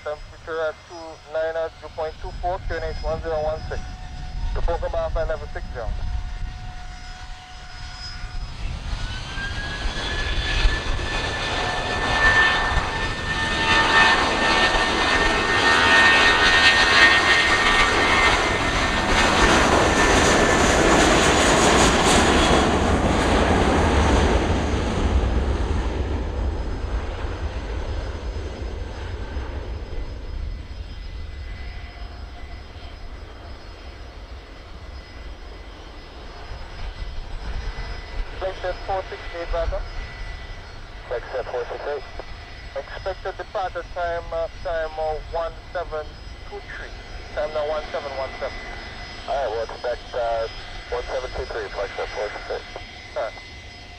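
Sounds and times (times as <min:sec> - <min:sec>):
jet engines whine rising: 0:00.0 - 0:53.9
jet roar: 0:00.0 - 0:53.9.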